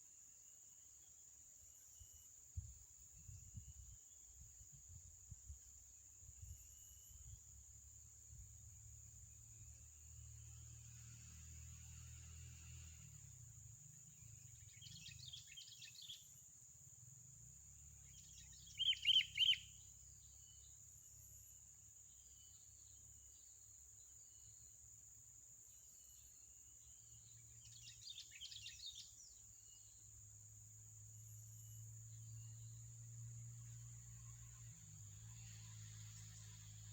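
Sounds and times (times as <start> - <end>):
small birds chirping: 13.7 - 16.5, 17.6 - 24.8, 25.6 - 30.3.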